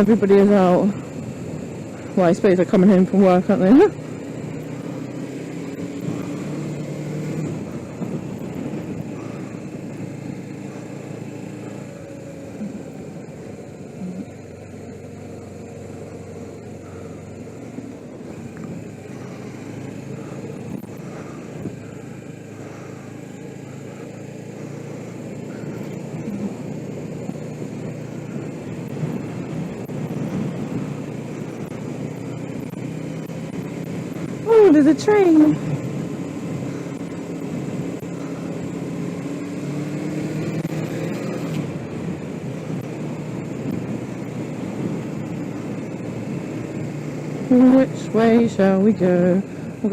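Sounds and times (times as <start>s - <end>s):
motorcycle engine running: 0.0s - 49.9s
wind noise: 5.8s - 10.4s, 25.5s - 38.4s, 39.9s - 49.8s.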